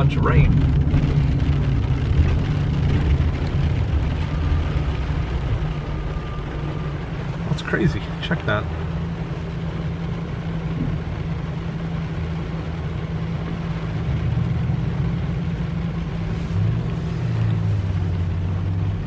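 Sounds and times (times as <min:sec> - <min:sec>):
car engine hum: 0:00.0 - 0:19.0
heavy rain hissing: 0:00.0 - 0:19.0.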